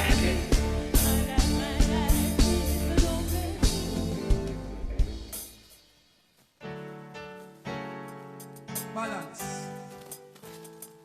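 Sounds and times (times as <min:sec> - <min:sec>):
reggae band drums and bass: 0:00.0 - 0:05.9.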